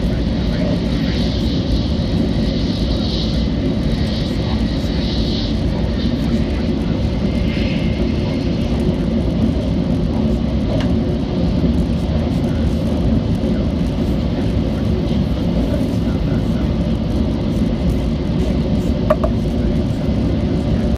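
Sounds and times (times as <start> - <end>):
train rumble inside cabin: 0.0 - 20.9
brief tap: 19.1 - 19.4.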